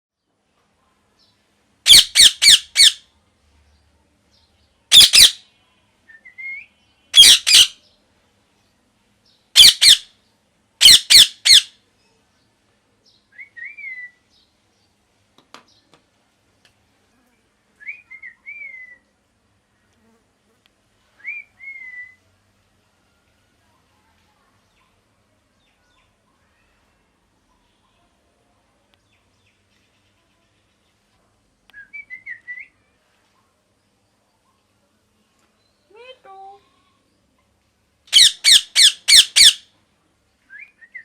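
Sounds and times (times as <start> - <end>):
parrot squawking: 1.9 - 3.0, 4.9 - 5.4, 7.2 - 7.8, 9.6 - 10.1, 10.8 - 11.8, 38.1 - 39.7
parrot whistled chirps: 1.9 - 3.0, 6.2 - 7.8, 9.6 - 10.0, 10.8 - 11.7, 38.1 - 39.6.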